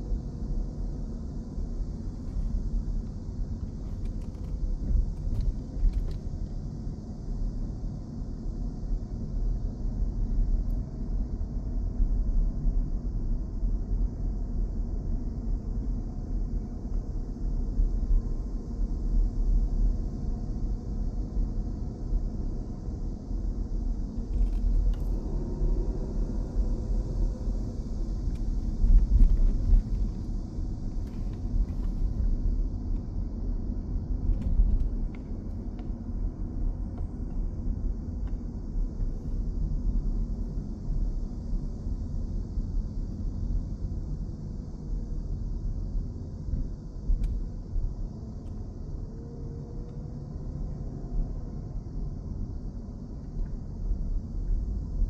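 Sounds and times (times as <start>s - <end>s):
low outdoor rumble: 0.0s - 55.0s.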